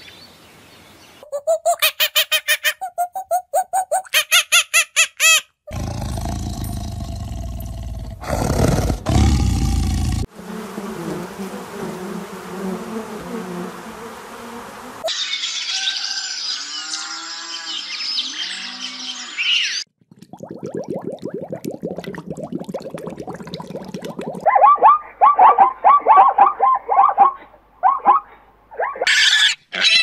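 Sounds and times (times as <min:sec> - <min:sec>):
squeaky animal calls: 0:01.2 - 0:05.5, 0:15.0 - 0:19.8, 0:24.5 - 0:30.0
honeybees humming: 0:10.2 - 0:15.0.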